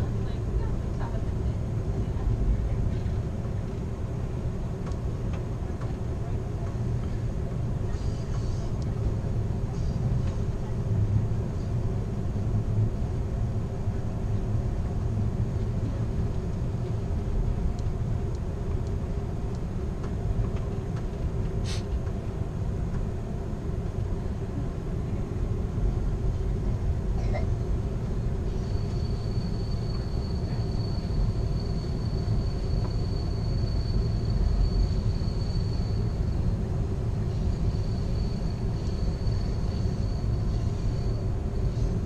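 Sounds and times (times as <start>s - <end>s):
train car rumbling on rails: 0.0s - 42.0s.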